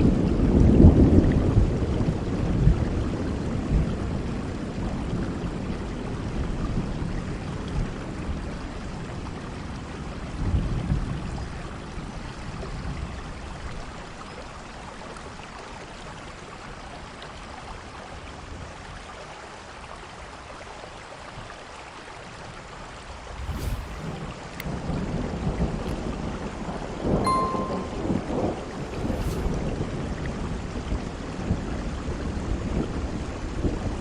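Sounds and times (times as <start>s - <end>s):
low rumble of thunder: 0.0s - 7.0s, 29.5s - 34.0s
steady rain: 0.0s - 27.3s, 28.1s - 34.0s.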